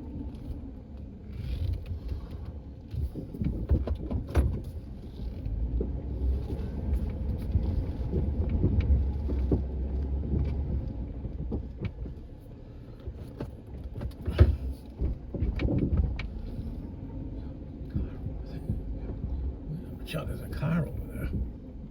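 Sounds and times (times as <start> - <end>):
vehicle engine running: 4.6 - 21.9.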